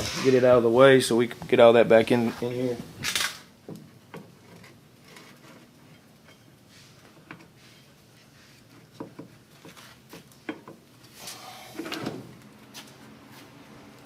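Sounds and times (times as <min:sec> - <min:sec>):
scrape or rattle: 0:11.1 - 0:12.1.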